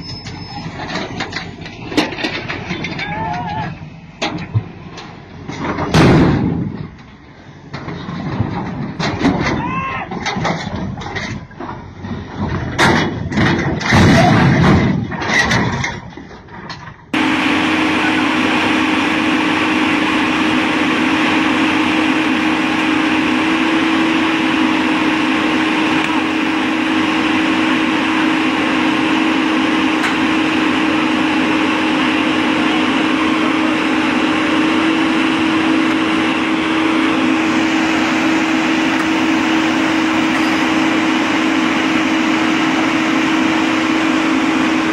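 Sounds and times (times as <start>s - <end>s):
heavy machine engine drone: 0.0s - 44.9s
voices: 2.8s - 3.8s.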